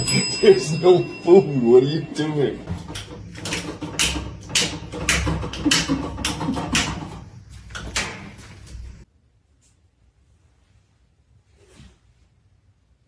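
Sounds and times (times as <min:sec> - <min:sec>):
rapid knocks and rattles: 0:02.7 - 0:09.0.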